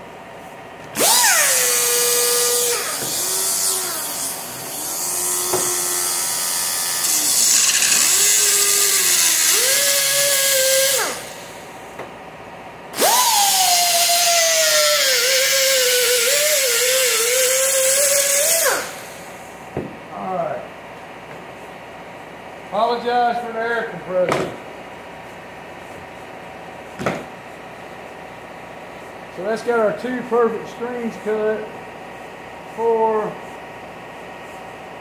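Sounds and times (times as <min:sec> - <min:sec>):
die grinder cutting wire mesh: 0:01.0 - 0:11.6, 0:13.0 - 0:19.3.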